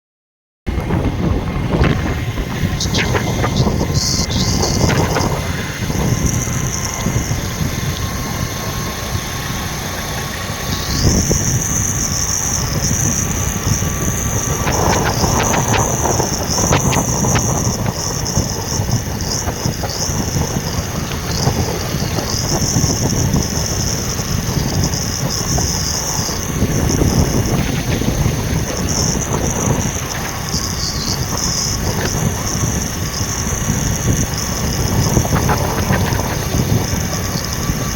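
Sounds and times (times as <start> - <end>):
truck engine rumbling: 0.7 - 37.9.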